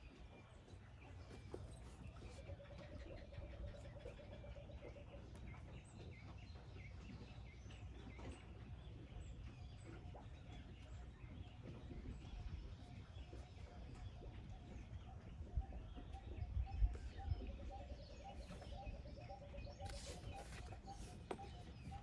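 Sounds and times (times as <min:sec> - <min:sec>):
small birds chirping: 0:15.0 - 0:22.0.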